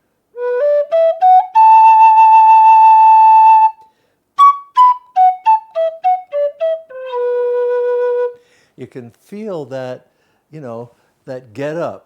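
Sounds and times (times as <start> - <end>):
flute playing: 0.4 - 8.4.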